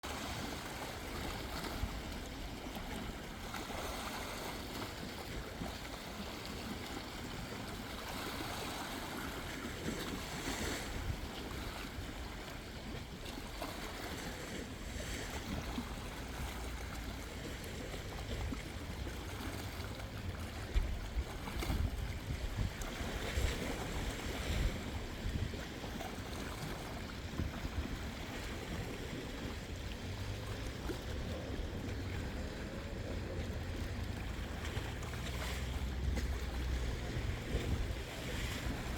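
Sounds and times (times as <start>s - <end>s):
wind rumbling on microphone: 0.0s - 38.9s.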